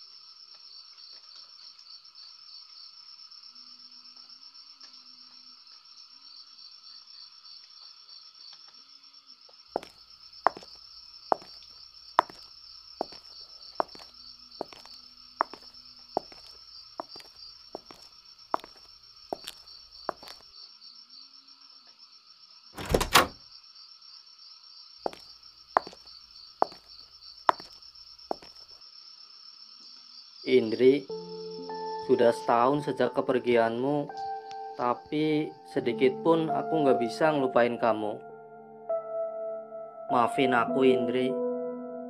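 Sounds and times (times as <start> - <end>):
footsteps walking: 9.8 - 20.4, 25.1 - 28.7
door thunk: 22.8 - 23.4.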